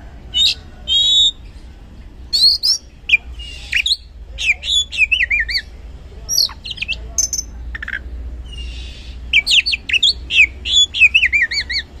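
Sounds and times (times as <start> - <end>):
bird singing whistled song: 0.4 - 1.4, 2.3 - 5.7, 6.3 - 11.9.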